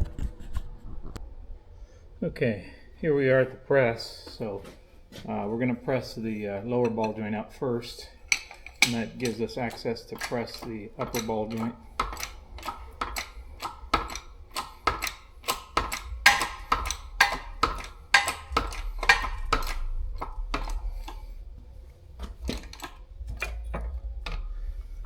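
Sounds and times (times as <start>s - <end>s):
sharp metallic clicks from press: 8.3s - 21.2s.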